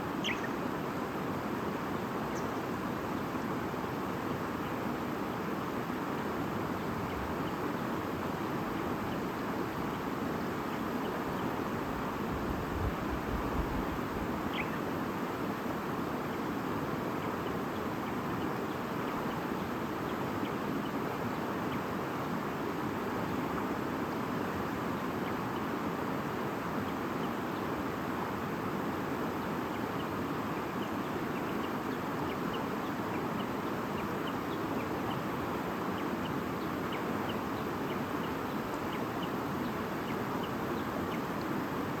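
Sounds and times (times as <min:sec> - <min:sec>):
faint bird chirps: 0:00.1 - 0:00.7, 0:14.5 - 0:14.9.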